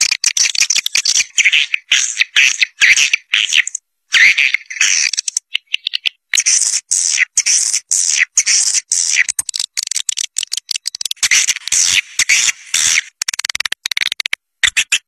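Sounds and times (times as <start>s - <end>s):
rapid clicks: 8.7s - 12.3s, 13.1s - 15.0s.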